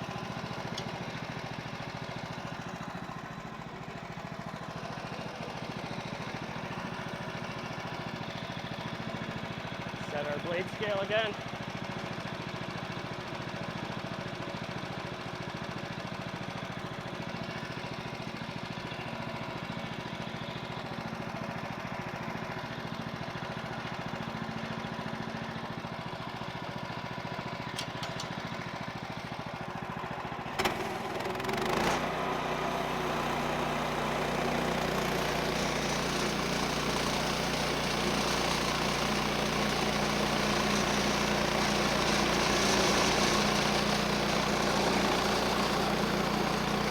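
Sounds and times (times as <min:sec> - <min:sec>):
sawmill engine running: 0:00.0 - 0:46.9
engine throttle clatter: 0:30.5 - 0:32.2.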